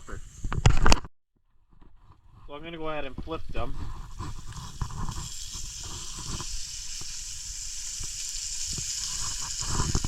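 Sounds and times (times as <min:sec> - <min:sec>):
food sizzling in a pan: 0:03.4 - 0:10.0.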